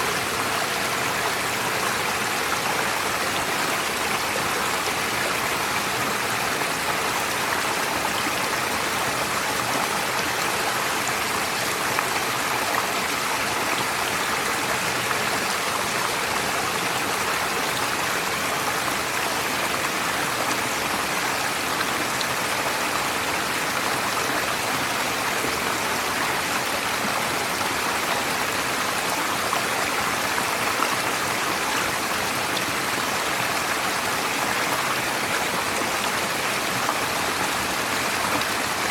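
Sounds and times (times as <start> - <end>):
stream flowing over stones: 0.0 - 38.9.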